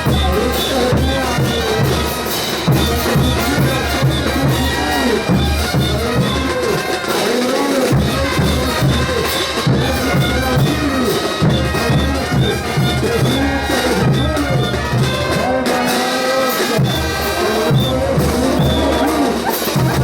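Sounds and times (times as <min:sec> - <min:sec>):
bass line: 0:00.0 - 0:06.8, 0:08.0 - 0:15.8, 0:16.7 - 0:20.0
brass band playing: 0:00.0 - 0:20.0
percussion beat: 0:00.0 - 0:20.0.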